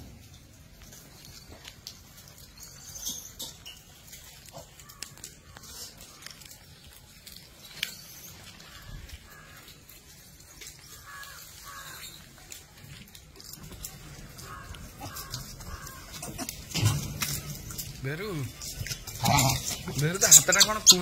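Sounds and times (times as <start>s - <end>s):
light clicks and rustles: 0.2s - 21.0s
crow cawing: 8.6s - 9.8s, 10.9s - 12.2s, 14.4s - 16.5s.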